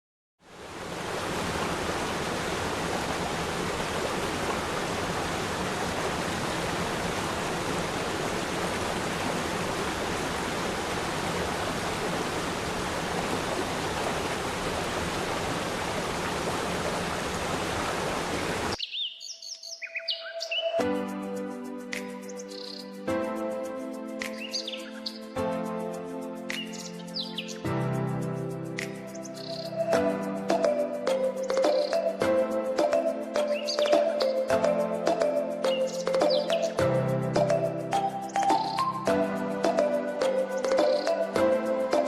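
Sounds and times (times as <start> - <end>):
waterfall rushing: 0.5 - 18.8
birds chirping: 18.2 - 20.8, 22.3 - 23.0, 24.3 - 25.4, 26.6 - 27.6, 29.2 - 30.0, 31.4 - 32.2, 33.4 - 34.5, 35.6 - 36.8, 37.4 - 39.1, 40.6 - 41.3.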